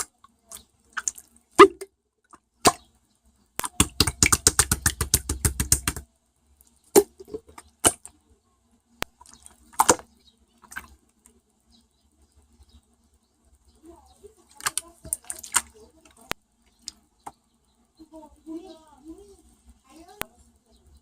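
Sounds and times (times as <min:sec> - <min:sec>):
taps and clicks: 0:03.6 - 0:06.0.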